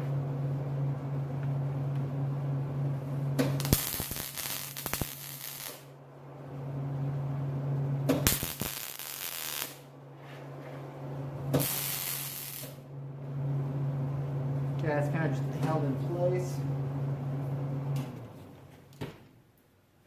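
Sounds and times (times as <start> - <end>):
steady low hum: 0.0 - 20.0
arc welder crackling hiss: 3.4 - 5.9, 8.1 - 9.9, 11.5 - 12.8.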